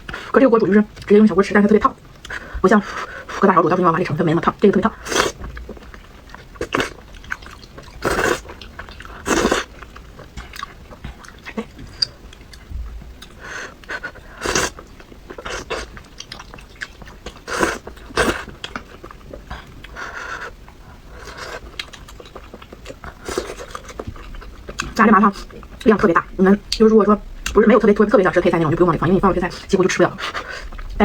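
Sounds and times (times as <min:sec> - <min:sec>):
wet chewing and biting: 0:05.2 - 0:25.9.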